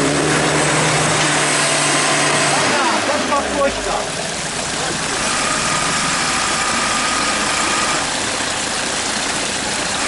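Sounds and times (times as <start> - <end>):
engine running at low revs: 0.0 - 10.0.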